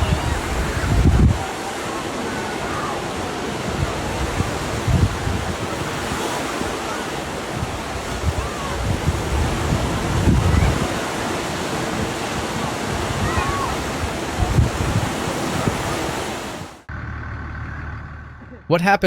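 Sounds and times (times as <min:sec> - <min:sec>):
wind buffeting microphone: 0:00.0 - 0:16.8.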